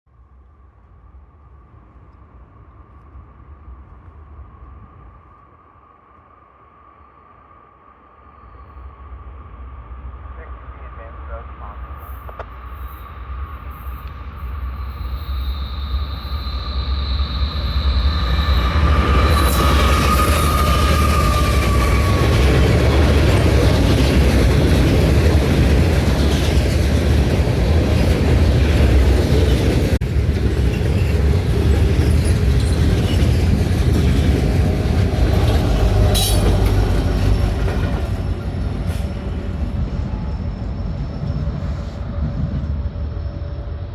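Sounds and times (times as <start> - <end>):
freight train wheels rumbling: 8.5 - 43.9
high wheel squeal: 12.1 - 23.0, 35.4 - 39.2.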